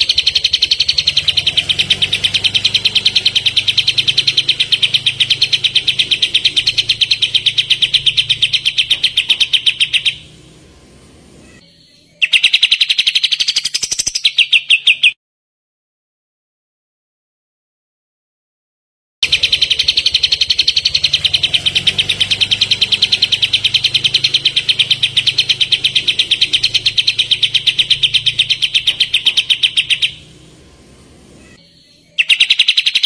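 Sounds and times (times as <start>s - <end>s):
bird rapid trill: 0.0s - 15.2s, 19.2s - 33.0s.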